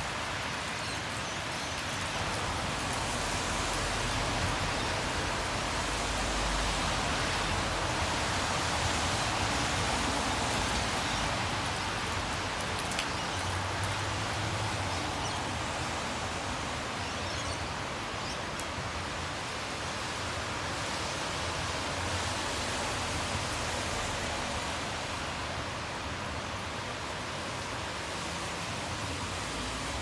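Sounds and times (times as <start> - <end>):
low rumble of road traffic: 0.0 - 30.0
rain hissing: 1.4 - 18.3.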